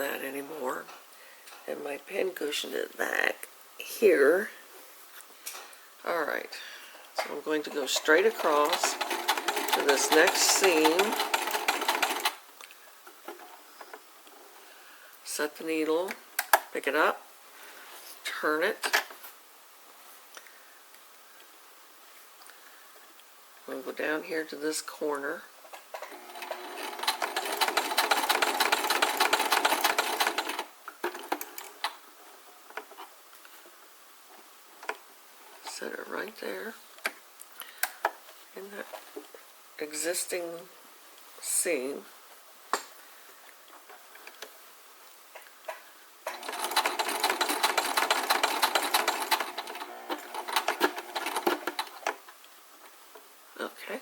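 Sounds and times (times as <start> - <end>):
sewing machine stitching: 7.7 - 12.4, 26.1 - 31.8, 46.3 - 52.1.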